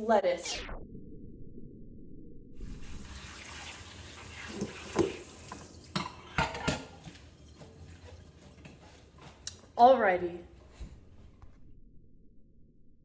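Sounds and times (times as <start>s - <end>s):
kitchen tap running: 2.7s - 9.0s.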